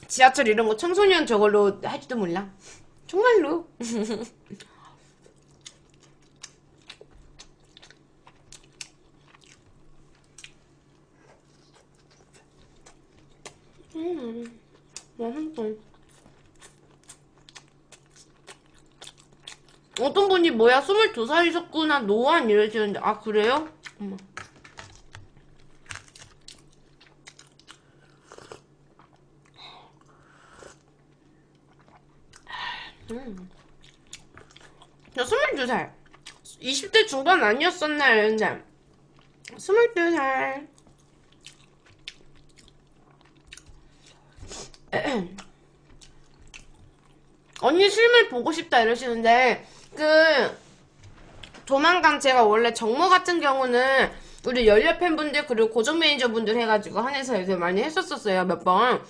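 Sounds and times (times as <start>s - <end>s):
person chewing food: 4.5s - 15.2s, 15.8s - 20.0s, 23.8s - 35.2s, 36.0s - 36.5s, 38.8s - 39.6s, 40.8s - 47.6s
crisp food crunches: 24.3s - 29.3s.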